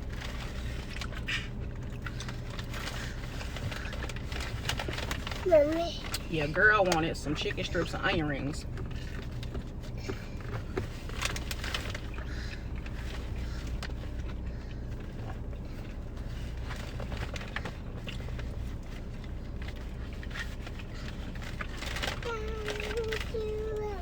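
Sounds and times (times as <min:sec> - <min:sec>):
car engine idling: 0:00.0 - 0:24.0
chewing and crunching food: 0:00.0 - 0:24.0
small clicks and crackles: 0:00.0 - 0:24.0.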